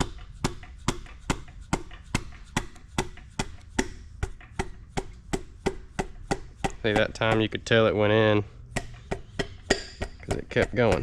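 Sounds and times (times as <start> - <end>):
piston being tapped into cylinder: 0.0 - 7.7, 8.7 - 11.0.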